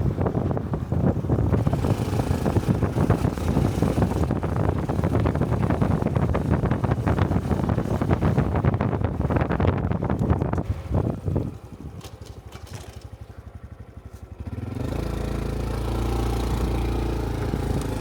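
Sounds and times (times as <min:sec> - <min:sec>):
wind buffeting microphone: 0:00.0 - 0:12.7
motorcycle engine running: 0:00.0 - 0:18.0.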